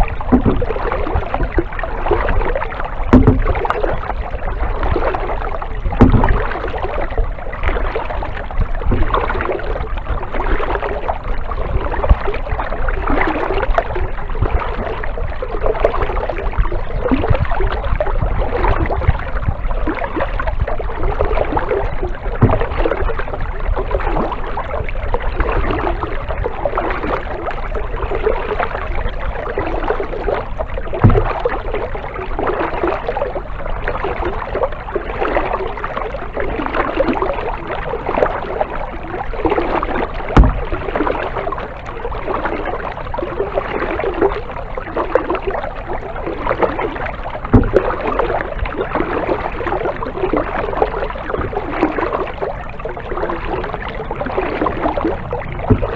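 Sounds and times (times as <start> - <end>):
paddle splashing in water: 0.0 - 55.9
short low thumps: 3.0 - 3.8, 5.9 - 6.6, 22.4 - 23.0, 30.9 - 31.5, 40.3 - 40.8, 55.4 - 55.9.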